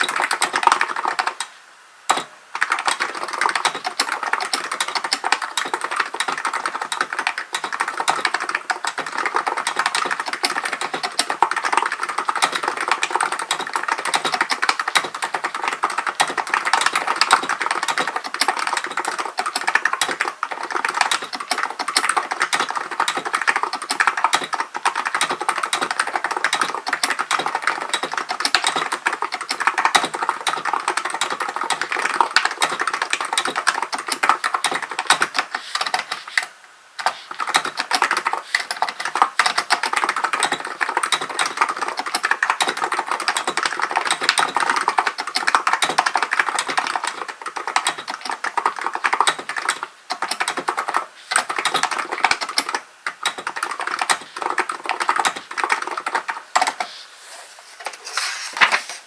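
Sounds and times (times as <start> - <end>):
fast typing on keyboard: 0.0 - 1.5, 2.1 - 57.0.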